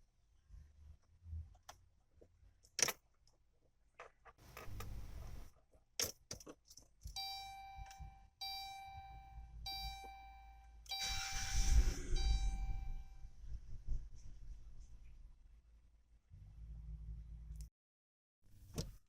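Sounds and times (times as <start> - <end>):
dashboard warning chime: 7.2 - 13.2
rumbling rushing noise: 11.6 - 15.1.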